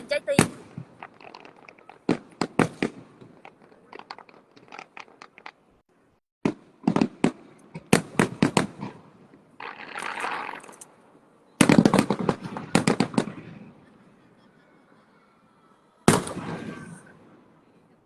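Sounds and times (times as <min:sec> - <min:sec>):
fireworks bangs: 0:00.0 - 0:05.8, 0:06.4 - 0:13.8, 0:16.1 - 0:17.7
fireworks crackling: 0:00.0 - 0:05.8, 0:06.4 - 0:13.7, 0:16.1 - 0:17.3.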